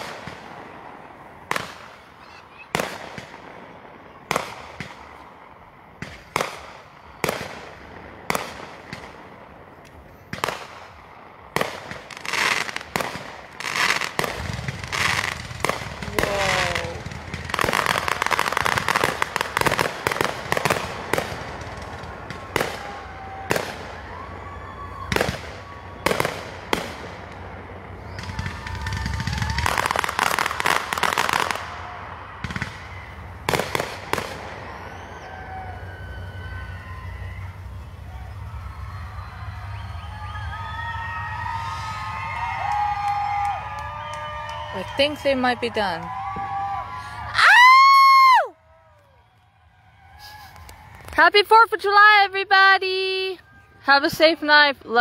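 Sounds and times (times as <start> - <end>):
fireworks shells bursting: 0.0 - 35.3
fireworks crackling: 0.0 - 55.0.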